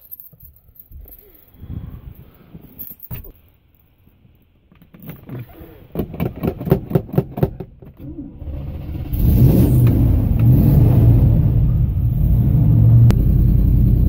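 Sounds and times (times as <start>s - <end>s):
van engine running: 8.0s - 14.0s.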